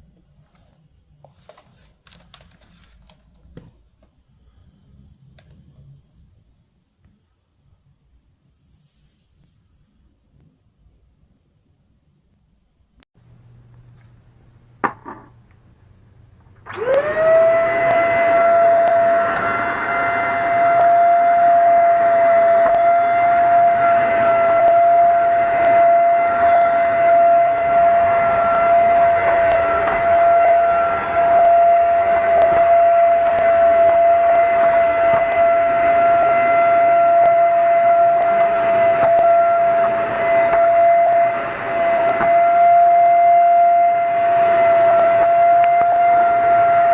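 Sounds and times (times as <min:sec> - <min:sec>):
handheld vacuum cleaner whine: 0:16.5 - 0:46.9.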